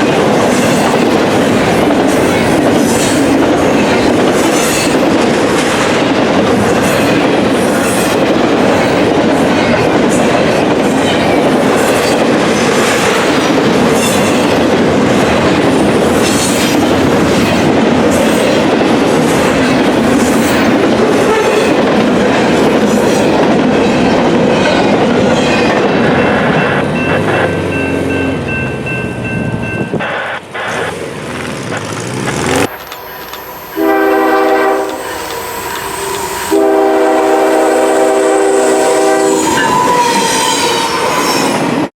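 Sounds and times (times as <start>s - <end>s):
train rumble: 0.0s - 41.9s
train wheels clacking over rail joints: 29.8s - 38.1s
train horn: 33.0s - 41.4s.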